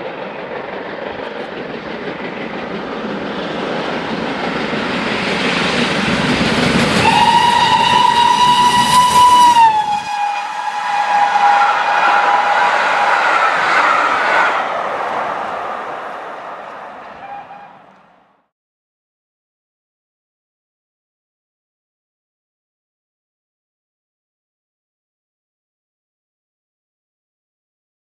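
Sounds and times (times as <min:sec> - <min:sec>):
train passing: 0:00.0 - 0:18.5
train whistle: 0:07.0 - 0:14.7, 0:17.1 - 0:18.1.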